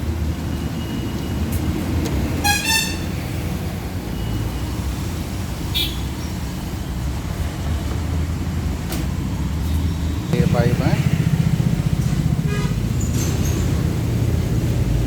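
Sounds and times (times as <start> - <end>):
rumble of traffic: 0.0 - 15.0
vehicle horn double toot: 2.4 - 3.1, 5.7 - 6.1.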